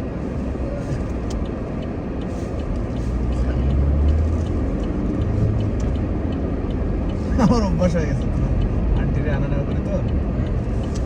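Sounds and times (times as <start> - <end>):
road and engine rumble in car: 0.0 - 11.0
faint light ticks: 0.1 - 11.0.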